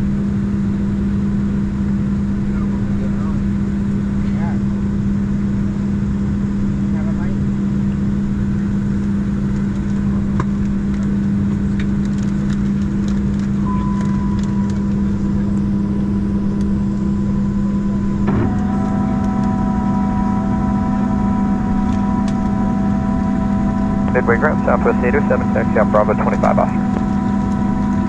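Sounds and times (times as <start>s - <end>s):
parked airliner droning: 0.0s - 28.0s
steady whining tones: 1.8s - 28.0s
thin whine: 13.5s - 28.0s.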